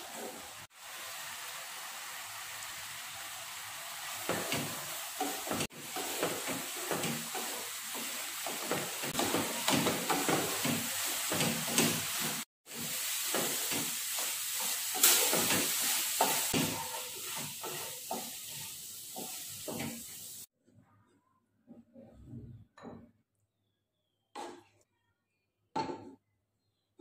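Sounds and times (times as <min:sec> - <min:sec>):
food sizzling in a pan: 0:00.0 - 0:20.5
spatula scraping a pan: 0:13.2 - 0:20.2.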